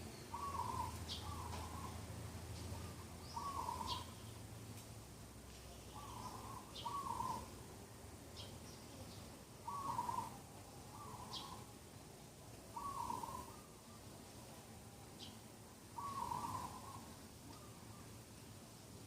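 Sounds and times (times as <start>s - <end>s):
bird repeating low call: 0.3s - 2.0s, 2.8s - 4.2s, 5.9s - 7.5s, 9.6s - 11.7s, 12.7s - 13.8s, 16.0s - 17.8s.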